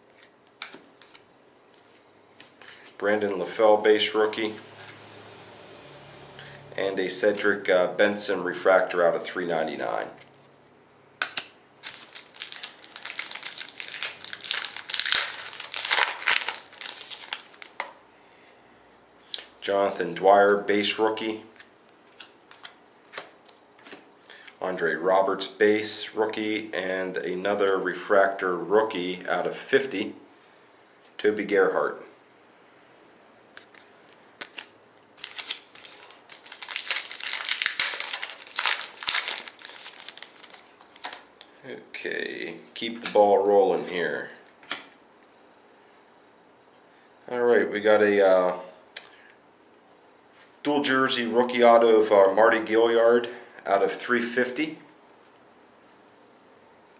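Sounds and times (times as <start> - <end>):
plastic wrapper crinkling: 11.3 - 18.0, 34.4 - 41.4.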